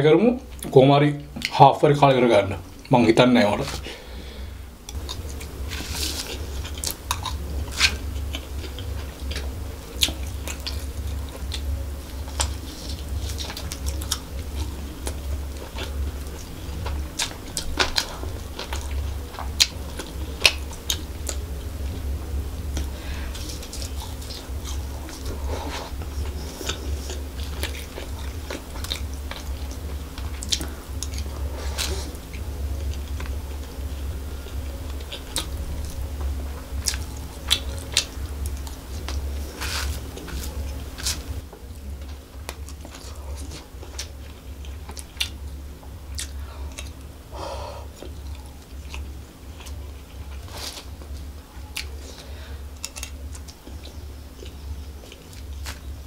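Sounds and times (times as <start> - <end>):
steady low hum: 0.0 - 56.0
chewing and biting food: 4.9 - 47.2, 47.9 - 56.0.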